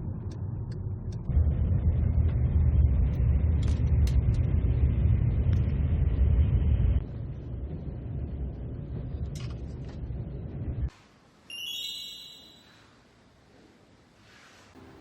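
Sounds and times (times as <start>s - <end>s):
high electronic chime: 11.5s - 12.8s.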